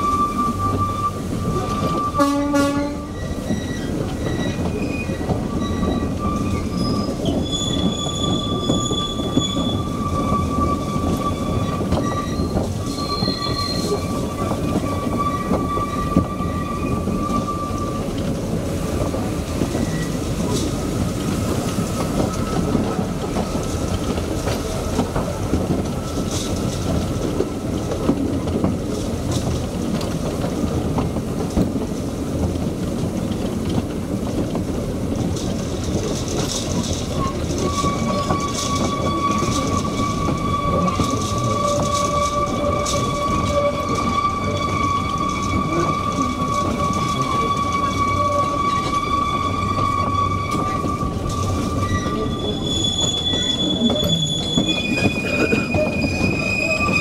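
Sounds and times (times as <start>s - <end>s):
short train horn toot: 0.0s - 3.2s
high wheel squeal: 0.0s - 18.1s, 19.7s - 20.7s, 36.9s - 57.0s
train wheels rumbling on rails: 0.0s - 57.0s.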